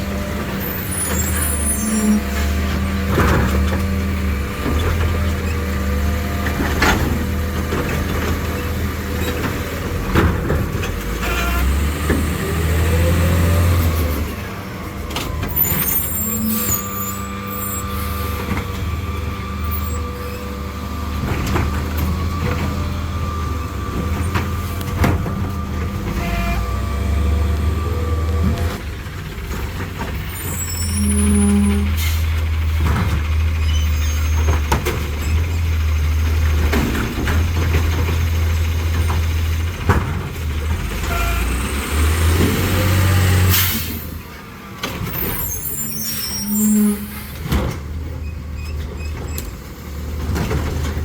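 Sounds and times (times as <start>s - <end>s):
garbage truck engine whining: 0.0s - 51.0s
air brakes hissing: 15.6s - 18.7s, 43.5s - 44.2s, 45.1s - 47.6s.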